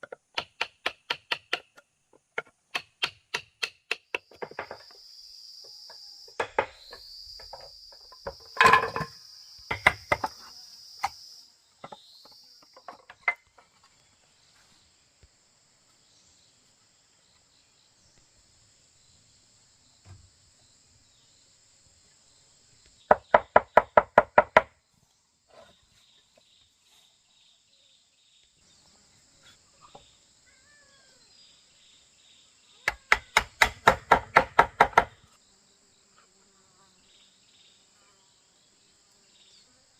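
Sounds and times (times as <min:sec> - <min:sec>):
knocks of blows on wood: 0:00.0 - 0:01.8, 0:09.7 - 0:10.4, 0:23.1 - 0:24.8, 0:32.8 - 0:35.2
insects buzzing: 0:00.0 - 0:39.9.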